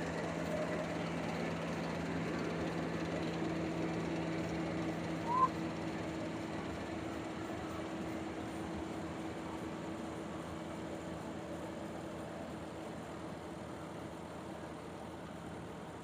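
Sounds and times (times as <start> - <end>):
harvester engine humming: 0.0 - 11.6
short rising chirp: 5.2 - 5.5.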